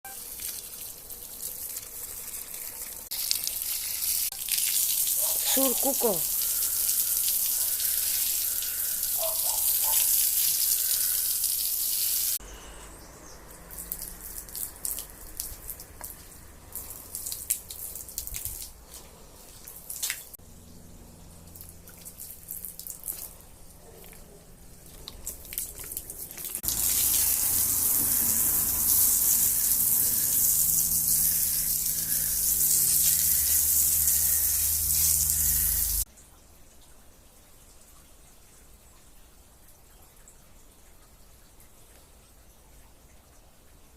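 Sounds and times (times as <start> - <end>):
water drips and splashes: 0.1 - 12.4, 13.5 - 20.4, 21.4 - 43.9
water rushing: 26.3 - 36.1.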